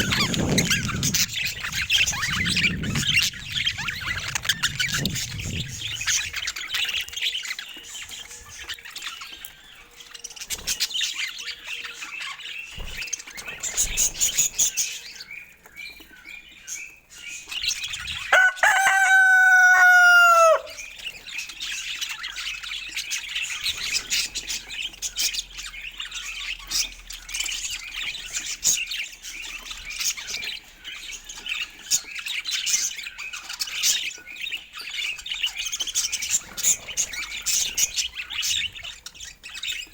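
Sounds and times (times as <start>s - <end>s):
budgies chirping and chattering: 0.0s - 39.9s
loud long bird call: 18.3s - 20.9s.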